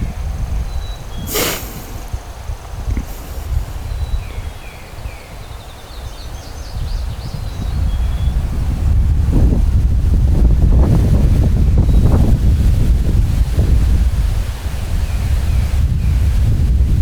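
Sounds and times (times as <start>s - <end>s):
songbirds chirping: 0.0s - 8.5s
wind rumbling on microphone: 0.0s - 17.0s
sharp burst of noise: 1.0s - 2.2s, 2.9s - 3.8s.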